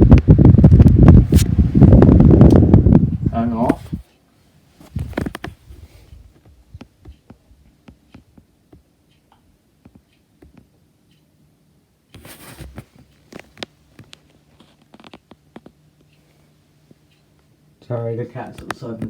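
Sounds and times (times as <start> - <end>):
fan ticking as it coasts down: 0.0 - 4.3, 12.9 - 19.0
fan switch click: 2.4 - 2.8
scraping rustle: 12.2 - 13.6.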